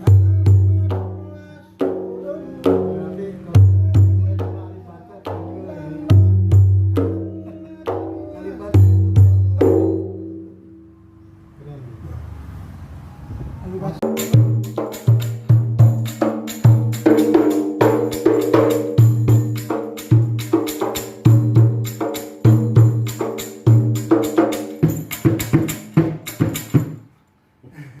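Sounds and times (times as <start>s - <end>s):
frame drum with jingles: 2.7s - 4.6s, 5.3s - 10.4s, 14.0s - 27.1s.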